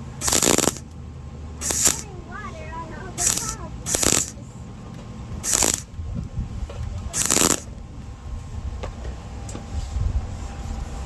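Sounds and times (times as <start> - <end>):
welder tack weld burst: 0.2 - 0.9, 1.6 - 2.1, 3.2 - 4.4, 5.4 - 5.9, 7.1 - 7.7.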